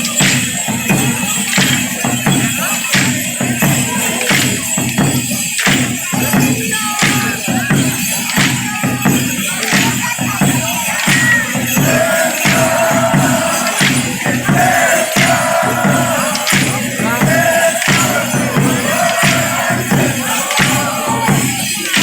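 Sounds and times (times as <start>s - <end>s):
drums: 0.0s - 22.0s
rattling percussion: 0.0s - 22.0s
held sung notes: 6.8s - 22.0s.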